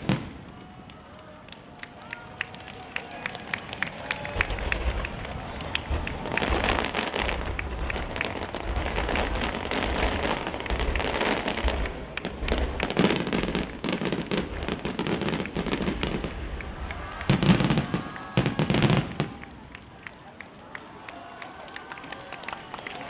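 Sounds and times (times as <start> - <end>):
fireworks booms: 0.0 - 0.9, 3.5 - 19.7
fireworks crackling: 0.0 - 23.0.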